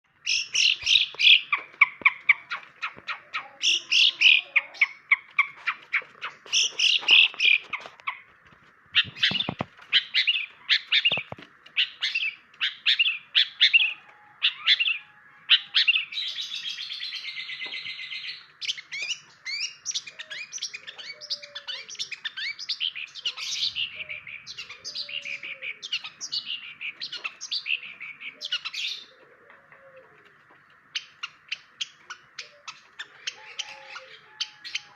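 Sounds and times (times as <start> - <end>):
bird singing sharp high chirps: 0.2 - 7.7.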